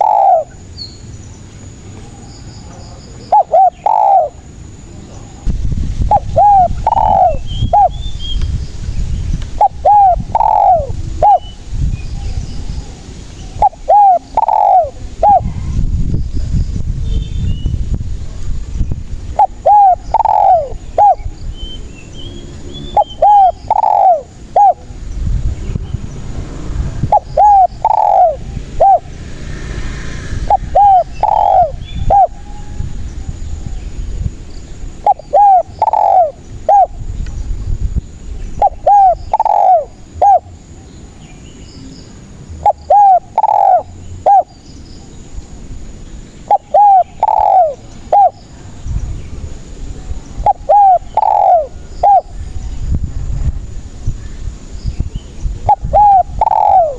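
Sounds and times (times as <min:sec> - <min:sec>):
dove cooing: 0:00.0 - 0:00.7, 0:03.0 - 0:04.5, 0:05.1 - 0:08.0, 0:09.5 - 0:11.7, 0:12.7 - 0:15.7, 0:19.3 - 0:21.4, 0:22.9 - 0:25.0, 0:26.9 - 0:29.2, 0:30.4 - 0:32.8, 0:34.9 - 0:37.0, 0:38.6 - 0:40.9, 0:42.5 - 0:44.6, 0:46.4 - 0:48.4, 0:50.4 - 0:52.4, 0:55.6 - 0:56.9.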